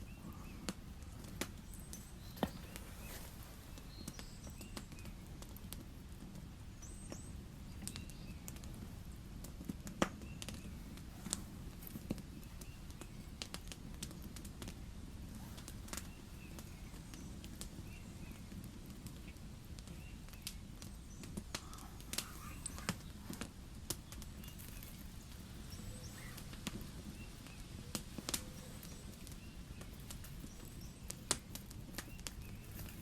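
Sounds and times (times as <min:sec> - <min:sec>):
campfire crackling: 0:00.0 - 0:33.0
sharp fire pops: 0:00.0 - 0:33.0
faint high chirps: 0:15.3 - 0:31.3.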